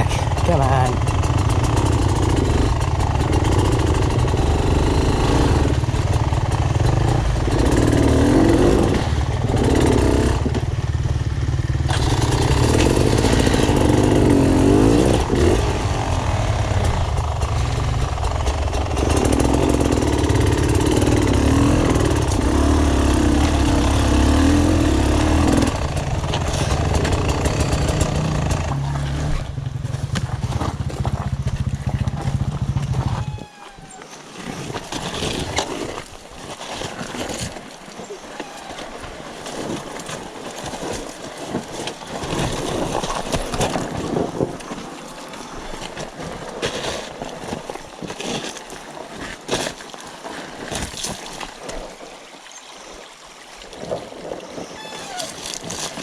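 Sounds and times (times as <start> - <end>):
dirt bike engine revving: 0.0 - 33.1.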